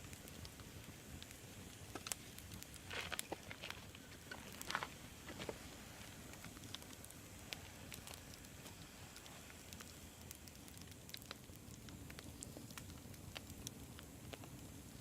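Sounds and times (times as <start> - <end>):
campfire flame rumble: 0.0 - 15.0
fire crackles and pops: 0.0 - 15.0.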